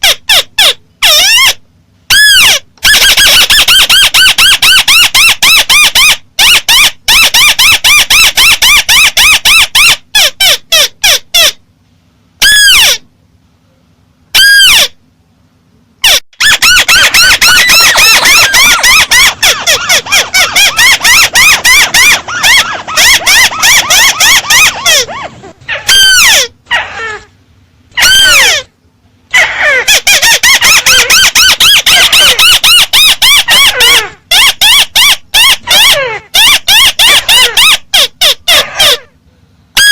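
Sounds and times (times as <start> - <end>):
high bird chirps: 16.0 - 25.2.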